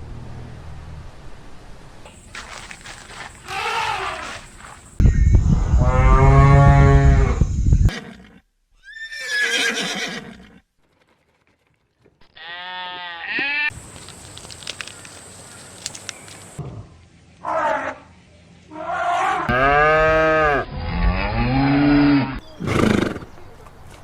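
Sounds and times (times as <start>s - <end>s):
farm animal calls: 2.1s - 5.2s.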